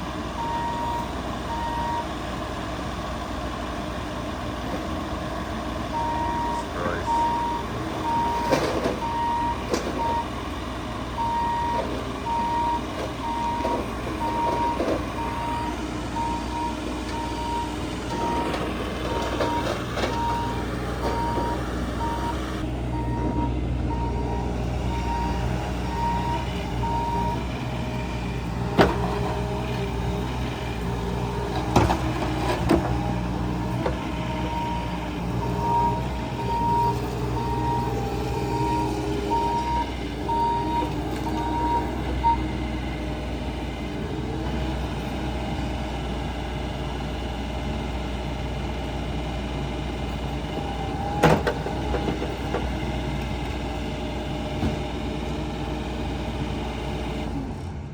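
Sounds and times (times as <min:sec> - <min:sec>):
diesel engine running: 0:00.0 - 0:57.9
backup alarm beeping: 0:00.4 - 0:02.1, 0:05.9 - 0:10.4, 0:11.2 - 0:28.0, 0:33.5 - 0:42.5.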